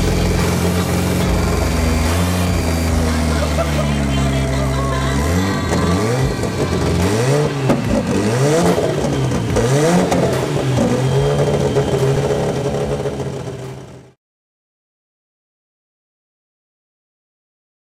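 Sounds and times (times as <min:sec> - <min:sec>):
dragster engine revving: 0:00.0 - 0:14.2.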